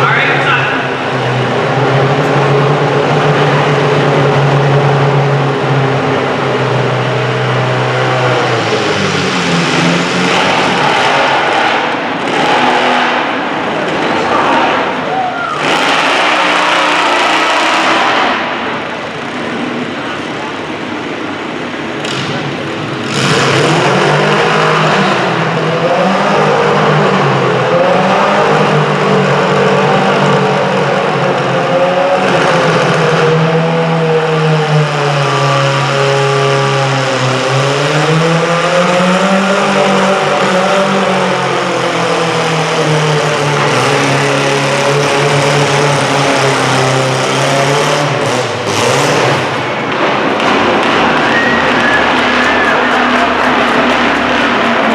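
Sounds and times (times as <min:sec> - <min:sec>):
garden tractor engine under load: 0:35.3 - 0:54.9.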